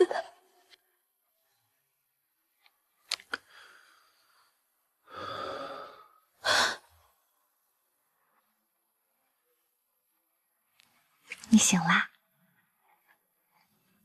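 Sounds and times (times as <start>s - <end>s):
person breathing heavily: 3.5s - 7.0s.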